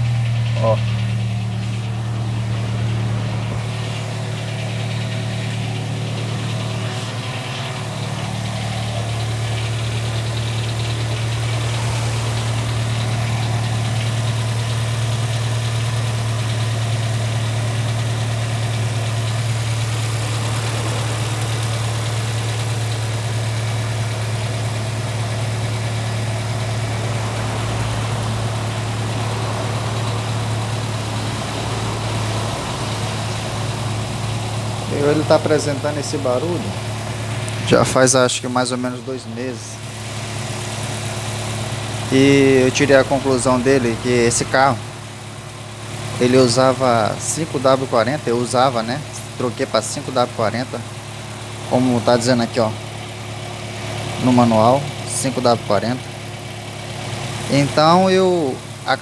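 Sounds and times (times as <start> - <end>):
car engine idling with knocking: 0.0 - 59.0.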